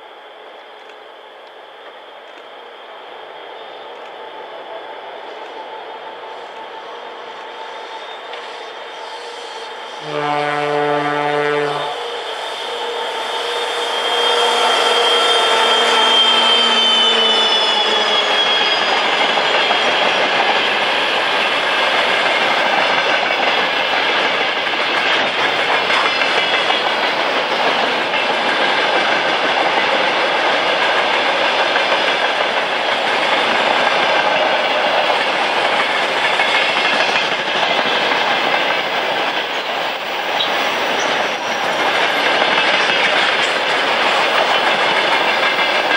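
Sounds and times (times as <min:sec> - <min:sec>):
pitched drone: 0:11.3 - 0:20.5
train wheels clattering over rails: 0:13.5 - 0:45.9.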